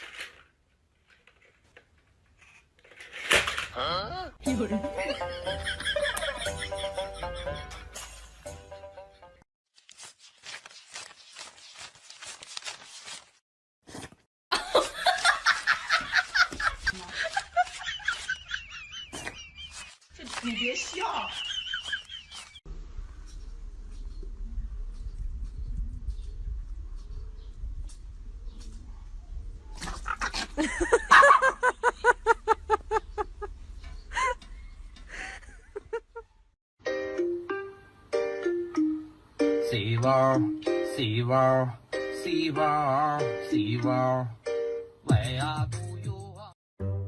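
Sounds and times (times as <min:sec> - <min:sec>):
people laughing: 0:04.5 - 0:08.0, 0:14.6 - 0:22.6, 0:30.3 - 0:33.6.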